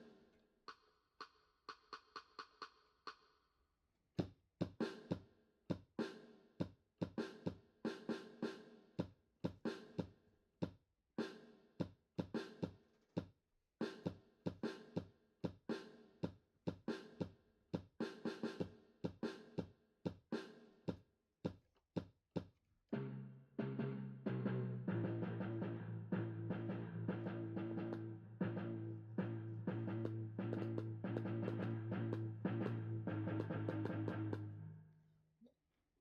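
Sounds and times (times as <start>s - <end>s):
drum kit beat: 4.2s - 10.1s, 11.2s - 12.7s, 13.8s - 15.9s, 16.7s - 21.6s, 28.6s - 34.5s.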